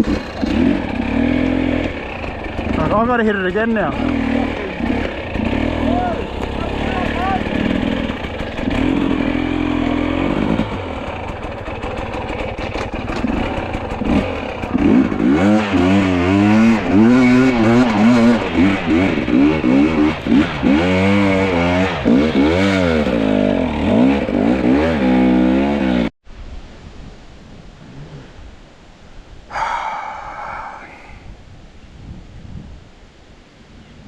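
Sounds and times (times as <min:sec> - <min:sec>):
dirt bike engine revving: 0:00.0 - 0:26.1.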